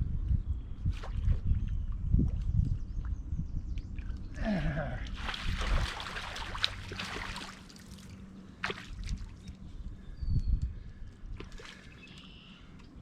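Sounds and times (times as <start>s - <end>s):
water splashing and sloshing: 0.8s - 3.1s, 4.9s - 9.7s, 11.3s - 13.0s.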